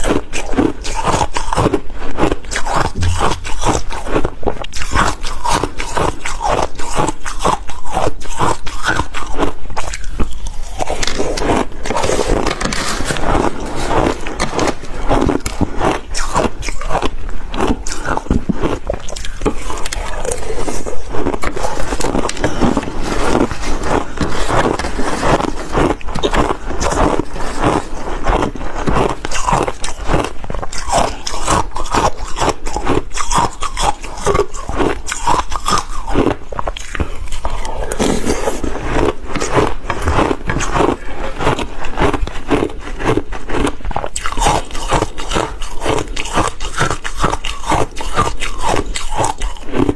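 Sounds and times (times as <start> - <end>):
ice being chewed: 0.0 - 49.9.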